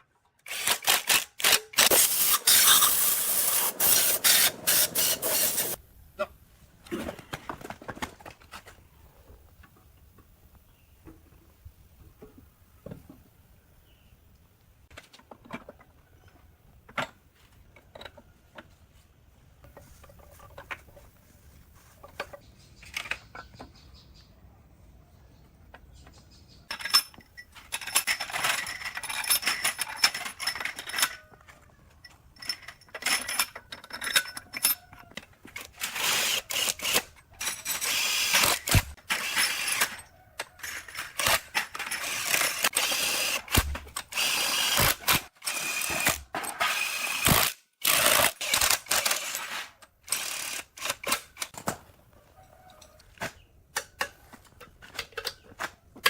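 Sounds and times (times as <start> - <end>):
power tool on metal: 1.8 - 5.8, 35.8 - 40.0, 41.3 - 49.6.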